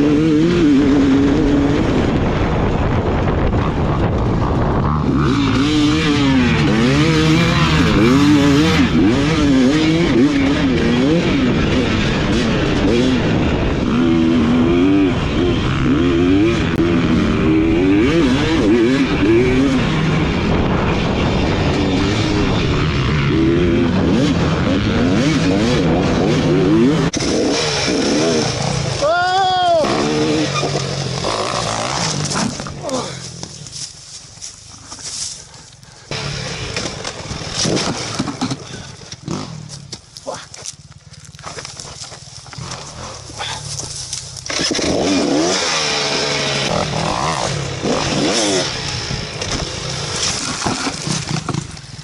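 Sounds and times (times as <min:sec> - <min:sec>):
dirt bike engine revving: 0:00.0 - 0:33.9, 0:36.1 - 0:40.0, 0:40.6 - 0:52.0
wind rushing: 0:10.7 - 0:27.6.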